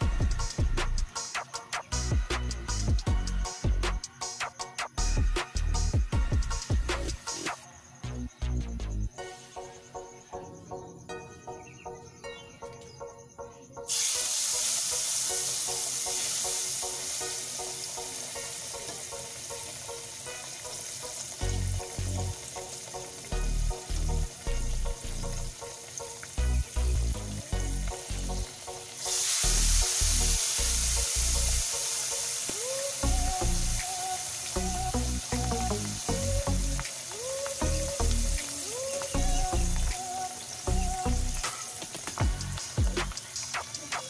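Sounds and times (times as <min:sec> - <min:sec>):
pork chops sizzling in oil: 0:13.9 - 0:44.0.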